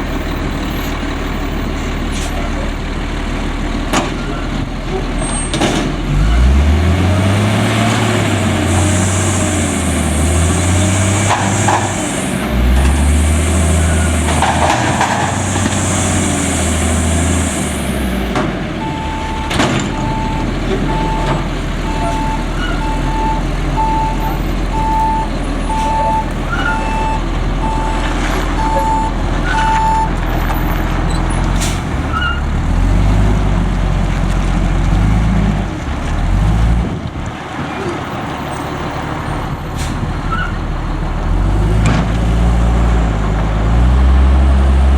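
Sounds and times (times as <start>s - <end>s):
garbage truck engine revving: 0.0s - 44.9s
air hissing: 8.6s - 12.3s
reversing alarm beeps: 18.8s - 28.0s, 28.6s - 30.1s.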